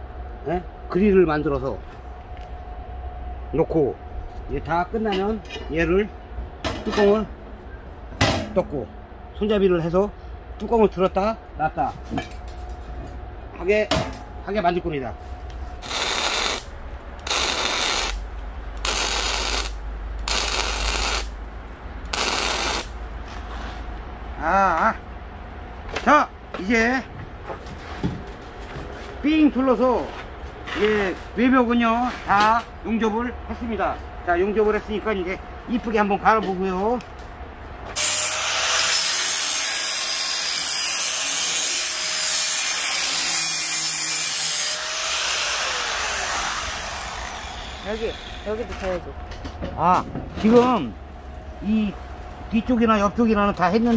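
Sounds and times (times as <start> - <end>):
power grinder grinding steel: 15.8 - 16.7, 17.3 - 18.2, 18.8 - 21.3, 22.1 - 22.9, 38.0 - 48.5
electric arc welding: 15.8 - 21.4, 22.1 - 23.0, 38.0 - 48.7.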